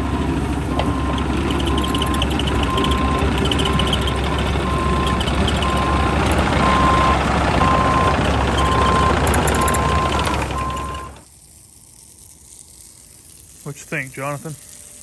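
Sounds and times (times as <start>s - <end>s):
excavator engine running: 0.0s - 11.2s
travel alarm beeping: 0.0s - 11.2s.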